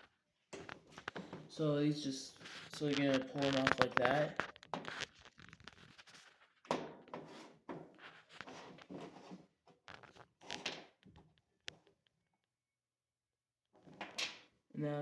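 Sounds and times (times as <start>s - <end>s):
plastic parts scraping and rattling: 0.0s - 1.6s, 2.3s - 11.8s.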